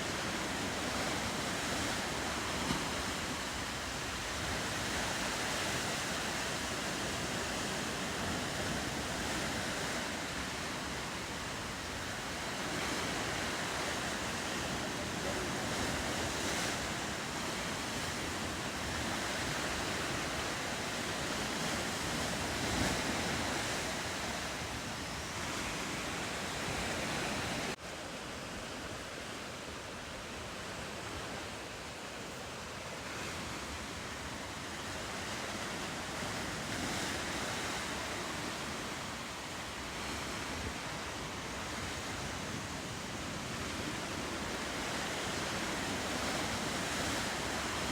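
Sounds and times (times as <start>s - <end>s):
wind on microphone: 0.0s - 27.8s
ocean surf washing: 0.0s - 47.9s.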